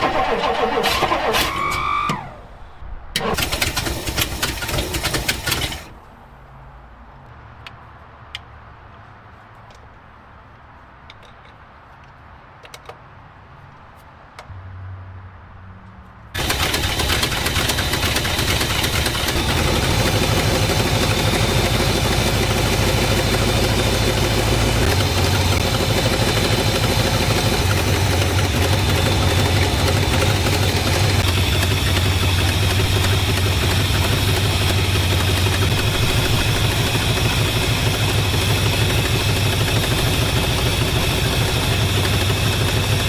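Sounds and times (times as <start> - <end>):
car engine starting and running: 0.0 - 6.1, 16.3 - 43.0.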